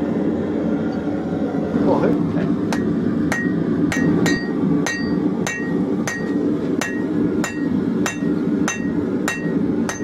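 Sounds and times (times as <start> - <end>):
steady low hum: 0.0 - 10.0
hammer striking hot metal: 2.7 - 10.0.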